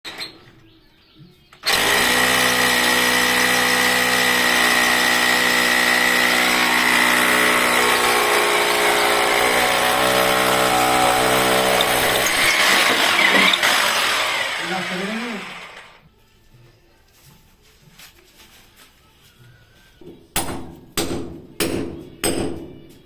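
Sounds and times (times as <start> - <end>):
electric power tool whining: 1.6 - 16.0.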